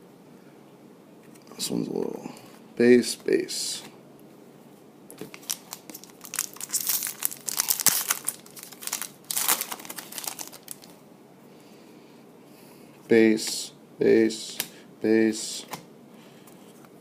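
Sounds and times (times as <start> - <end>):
wrapper tearing and crinkling: 5.2 - 11.0.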